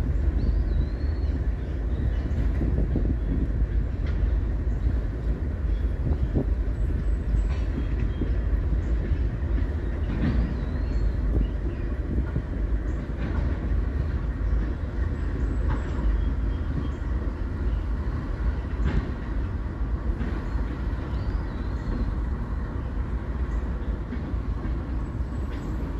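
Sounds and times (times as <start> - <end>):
freight train rumbling on bridge: 0.0 - 25.9
train wheel clicks: 3.8 - 5.0, 6.0 - 16.9.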